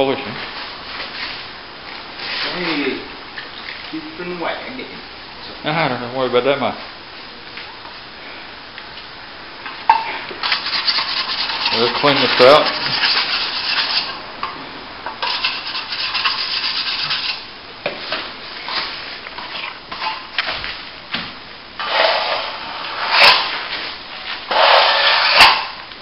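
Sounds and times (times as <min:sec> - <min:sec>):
trowel scraping wet plaster: 0:10.4 - 0:14.2, 0:24.5 - 0:25.8.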